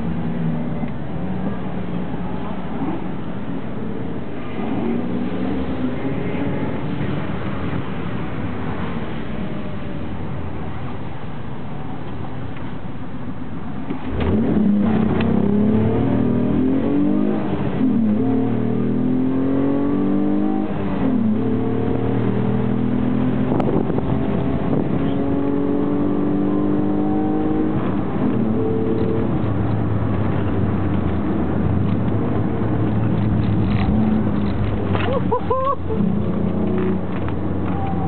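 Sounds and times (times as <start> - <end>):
car engine accelerating hard: 13.9 - 38.0.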